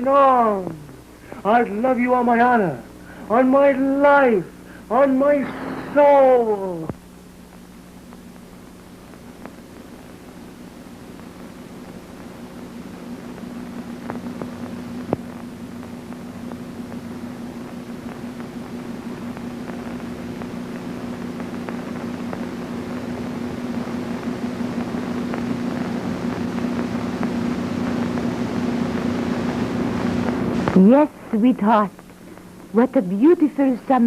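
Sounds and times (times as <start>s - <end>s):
low hum: 0.0s - 34.0s
crackling clicks: 6.8s - 32.9s.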